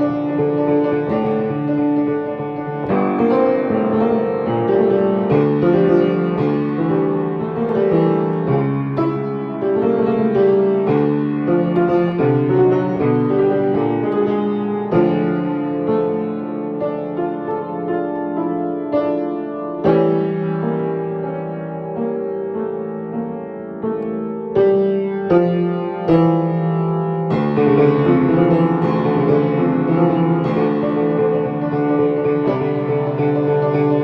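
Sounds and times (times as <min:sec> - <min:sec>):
solo piano music: 0:00.0 - 0:34.0.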